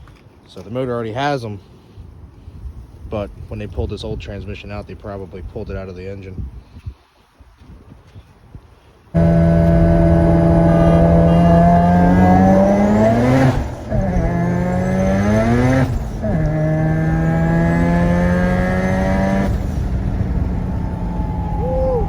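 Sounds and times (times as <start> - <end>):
car engine revving: 9.2 - 22.0.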